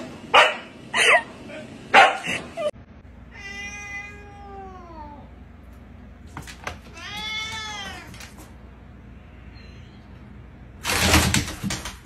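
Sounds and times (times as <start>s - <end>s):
dog barking: 0.3s - 0.7s, 1.9s - 2.4s
cat meowing: 3.3s - 5.3s, 6.9s - 8.3s.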